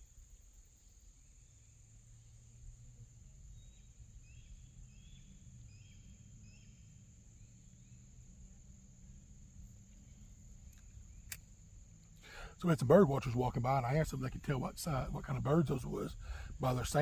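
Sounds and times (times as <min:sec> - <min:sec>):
insect drone: 0:00.0 - 0:17.0
high bird chirps: 0:03.5 - 0:08.1.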